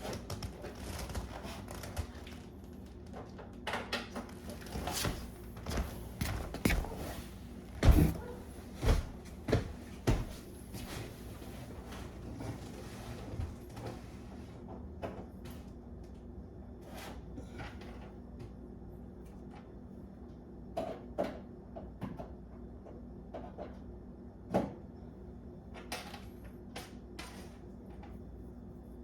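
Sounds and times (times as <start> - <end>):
steady low hum: 4.2 - 20.8.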